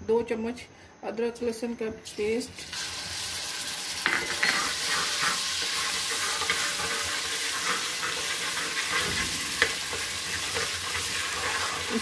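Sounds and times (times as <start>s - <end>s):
paste sizzling in hot oil: 2.1s - 12.0s
metal spatula scraping a pot: 4.3s - 12.0s.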